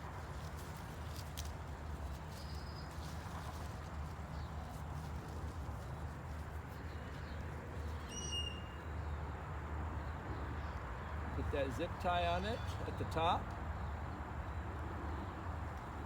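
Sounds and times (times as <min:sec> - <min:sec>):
faint thin whistle: 0:08.1 - 0:08.8.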